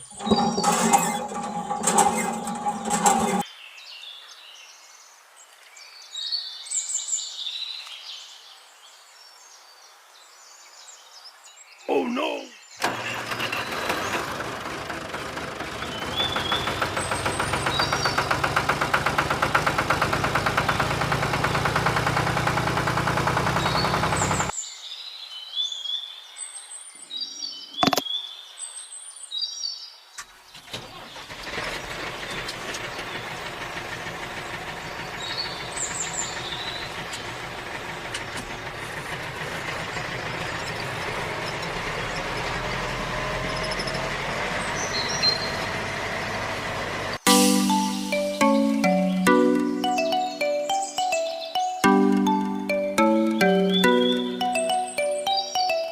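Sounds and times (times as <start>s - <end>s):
small motor running: 0.0s - 3.4s
birds chirping: 11.0s - 14.3s, 15.6s - 18.6s, 26.5s - 28.8s, 34.4s - 42.8s, 43.4s - 46.4s, 47.2s - 55.9s.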